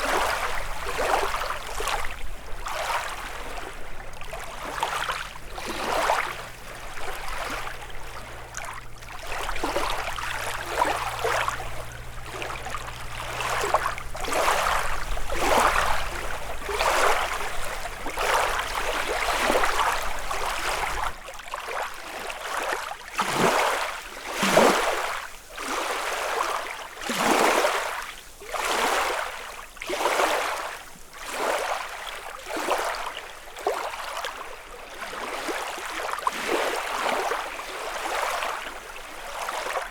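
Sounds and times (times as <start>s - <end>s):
low steady hum: 0.0s - 21.2s
lake waves lapping on shore: 0.0s - 39.9s.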